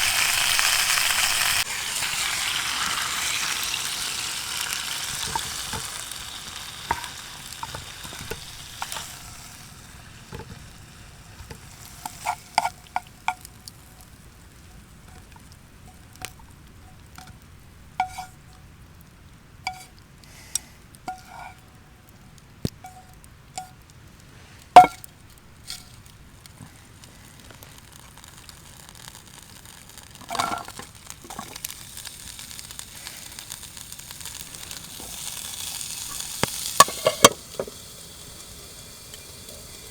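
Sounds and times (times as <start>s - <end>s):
food sizzling in a pan: 0.0s - 17.2s, 17.8s - 18.6s, 22.7s - 39.9s
utensil clinking on cookware: 6.9s - 9.1s.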